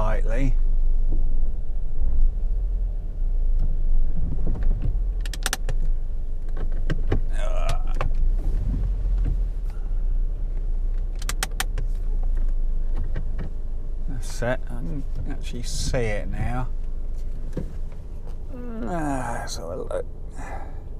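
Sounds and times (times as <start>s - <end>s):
car engine rumbling: 0.0s - 20.9s
sharp clicks: 5.2s - 5.8s, 11.0s - 13.5s.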